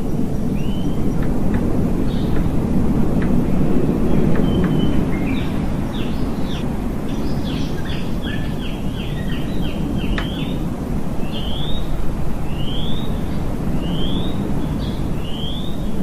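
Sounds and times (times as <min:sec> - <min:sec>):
songbird singing: 0:00.4 - 0:16.0.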